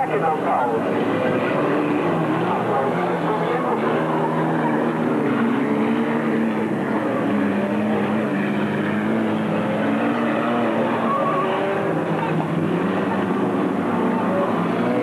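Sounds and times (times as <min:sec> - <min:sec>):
racing car engines revving: 0:00.0 - 0:15.0.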